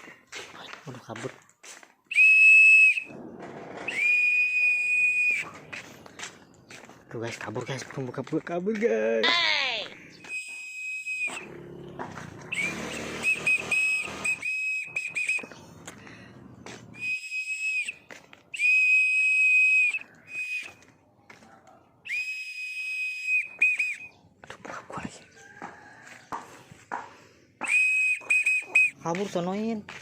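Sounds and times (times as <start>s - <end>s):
person whistling: 2.1s - 3.1s, 3.9s - 5.6s, 10.2s - 11.5s, 12.5s - 15.6s, 16.9s - 20.8s, 22.1s - 24.2s, 27.6s - 29.0s.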